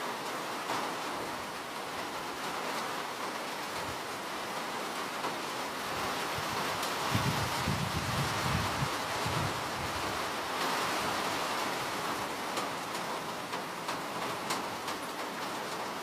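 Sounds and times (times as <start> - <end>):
rain hissing: 0.0 - 16.0
rain drop ticks: 12.4 - 15.8.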